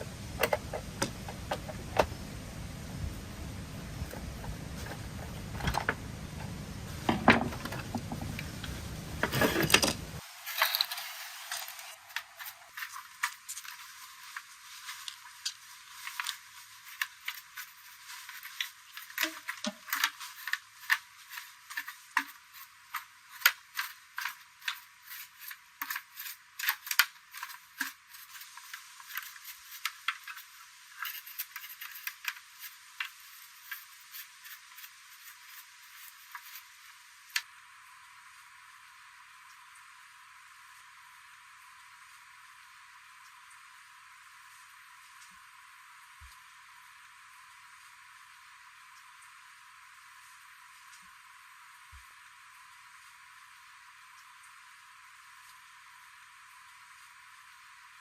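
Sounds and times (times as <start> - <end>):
loud dense rumbling: 0.0 - 10.2.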